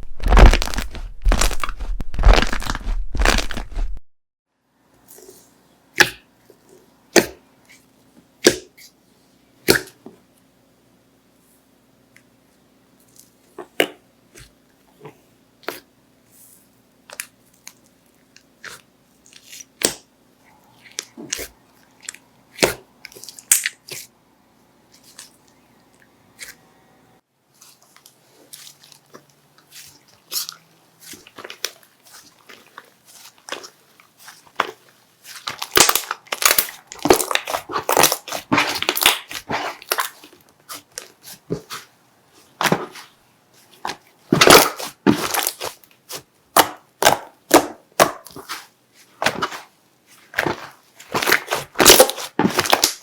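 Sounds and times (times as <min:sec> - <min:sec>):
slime squished by hand: 0:00.0 - 0:04.0, 0:27.6 - 0:53.0.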